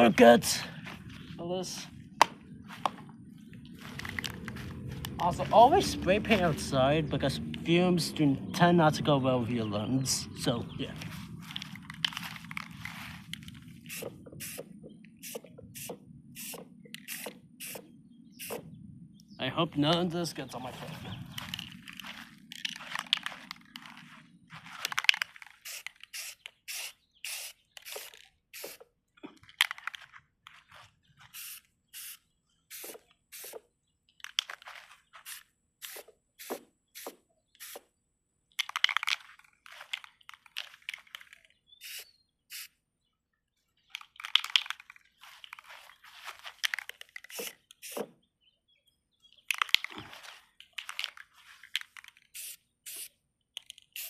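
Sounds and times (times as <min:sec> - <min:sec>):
spray paint can hissing: 0:13.8 - 0:17.8, 0:25.6 - 0:28.8, 0:31.3 - 0:33.6, 0:35.2 - 0:37.9, 0:41.8 - 0:42.7, 0:47.2 - 0:48.1, 0:52.3 - 0:53.1.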